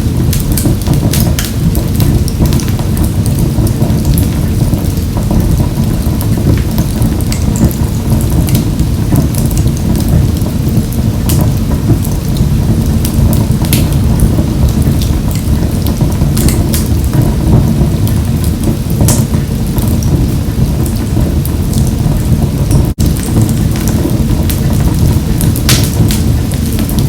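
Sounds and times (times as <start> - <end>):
wood fire crackling in a stove: 0.0 - 27.0.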